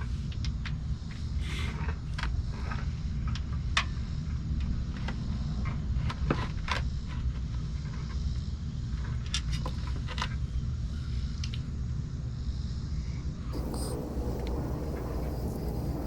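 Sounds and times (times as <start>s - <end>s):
low rumble: 13.6s - 16.0s.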